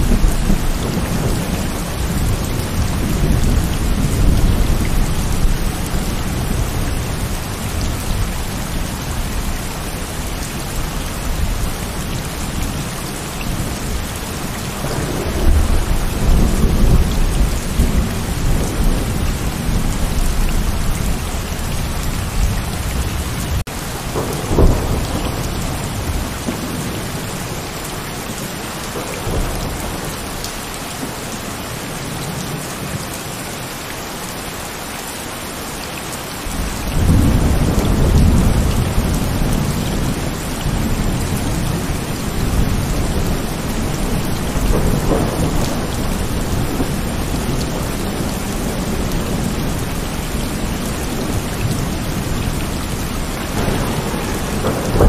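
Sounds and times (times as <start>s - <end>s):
thunder rumbling: 0.0s - 27.9s, 36.4s - 55.0s
heavy rain falling: 0.0s - 55.0s
sharp thunderclap: 14.8s - 19.9s, 24.0s - 27.0s, 36.5s - 49.6s, 53.4s - 55.0s.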